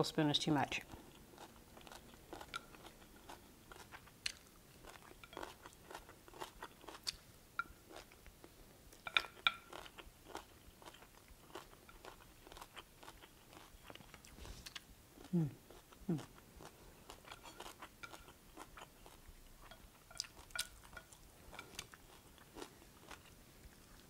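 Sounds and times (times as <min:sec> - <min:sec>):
person chewing crunchy food: 0:00.8 - 0:24.0.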